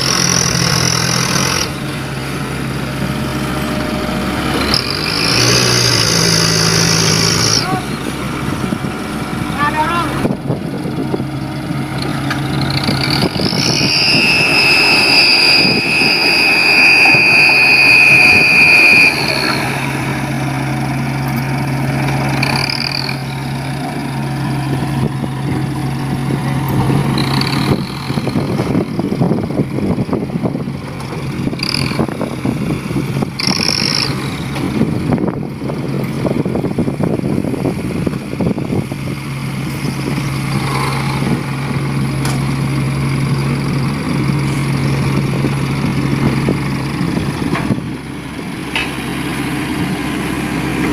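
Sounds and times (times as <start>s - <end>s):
short high squeals: 0.0s - 8.2s, 12.3s - 20.6s, 22.3s - 23.5s, 33.4s - 34.5s, 39.8s - 41.4s
high steady whine: 0.0s - 23.4s
truck engine running: 0.0s - 50.9s.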